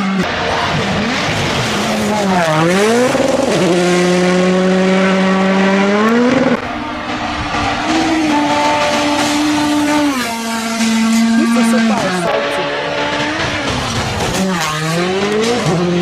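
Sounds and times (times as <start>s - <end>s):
rally car engine at full throttle: 0.0s - 16.0s.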